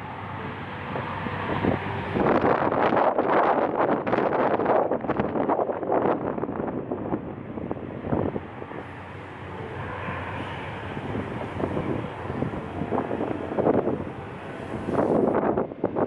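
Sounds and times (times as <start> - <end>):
gusty wind buffeting microphone: 0.0 - 16.0
jet engine noise: 0.0 - 16.0
faint high whine: 7.7 - 15.4.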